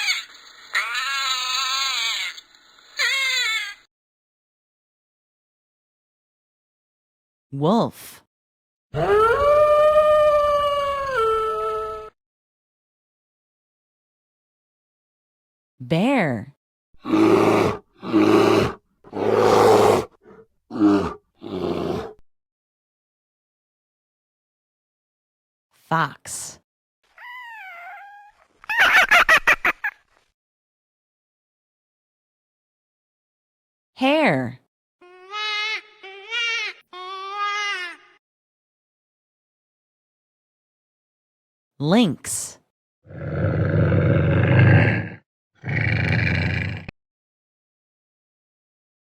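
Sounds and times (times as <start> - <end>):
bear growling: 17.0 - 22.2, 43.1 - 46.9
otter crying: 27.2 - 28.4.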